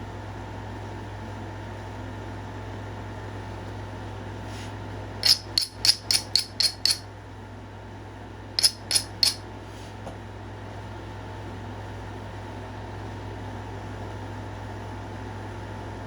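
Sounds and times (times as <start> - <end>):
fan hum: 0.0 - 16.0
stone knapping taps: 5.2 - 7.0, 8.6 - 9.4.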